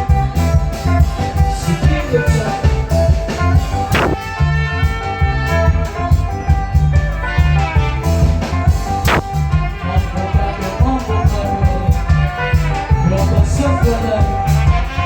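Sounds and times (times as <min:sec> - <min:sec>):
guitar: 0:00.0 - 0:15.0
live band playing: 0:00.0 - 0:15.0
sharp hit: 0:03.9 - 0:04.2, 0:09.1 - 0:09.3
repeating bass line: 0:03.9 - 0:04.3, 0:09.1 - 0:09.3.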